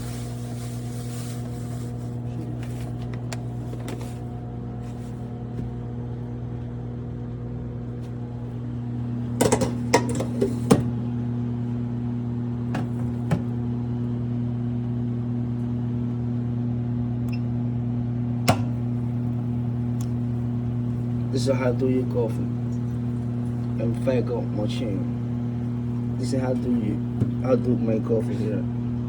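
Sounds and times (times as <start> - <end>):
coffee brewer humming: 0.0 - 29.0.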